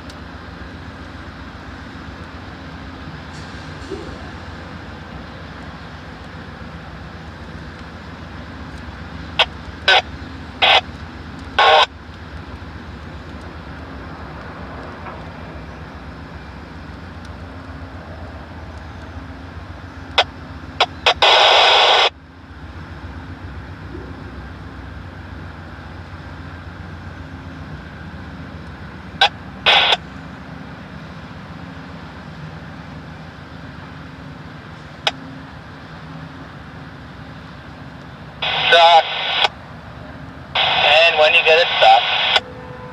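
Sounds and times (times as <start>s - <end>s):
diesel locomotive engine idling: 0.0s - 42.9s
radio scanner static bursts: 9.4s - 10.9s, 11.6s - 11.9s, 20.2s - 22.1s, 29.7s - 30.0s, 38.4s - 39.6s, 40.6s - 42.4s.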